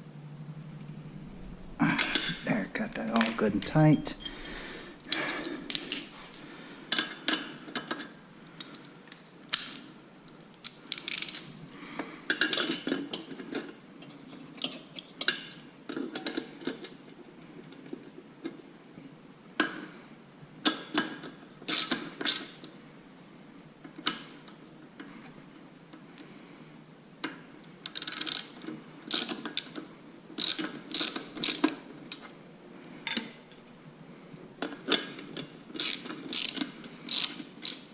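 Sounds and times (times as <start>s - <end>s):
ratchet wrench clicking: 30.4s - 31.6s, 35.8s - 37.9s.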